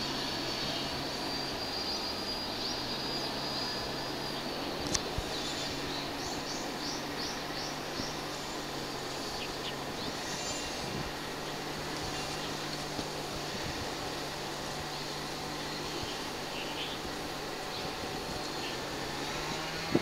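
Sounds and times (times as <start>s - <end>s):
high insect-like tone: 0.0s - 20.0s
small bird chirping: 14.8s - 18.9s.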